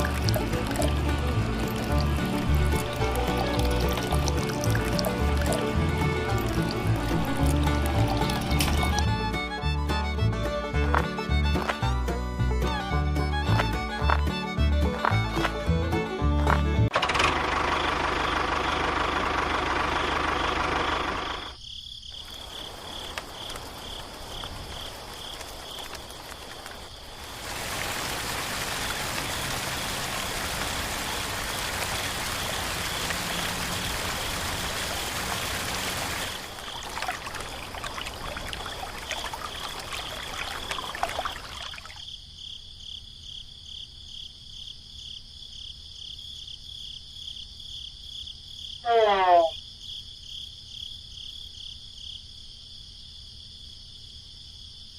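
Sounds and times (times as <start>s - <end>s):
water running and splashing: 0.0s - 9.4s, 22.2s - 42.0s
insects chirping: 17.7s - 54.9s.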